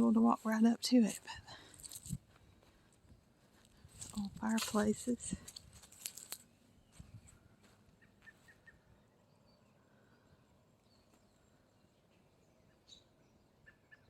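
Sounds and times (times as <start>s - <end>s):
faint bird chirps: 6.8s - 14.0s.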